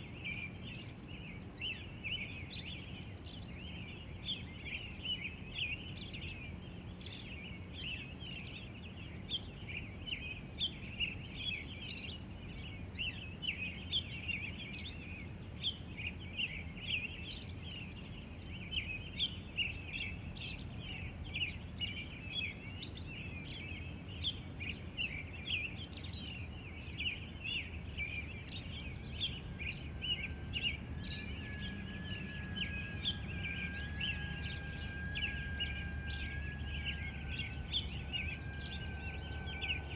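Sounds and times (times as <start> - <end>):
high-pitched insect hum: 0.0 - 39.9
birds chirping: 15.7 - 39.9
low background rumble: 17.6 - 39.9
steady tone: 29.7 - 39.9.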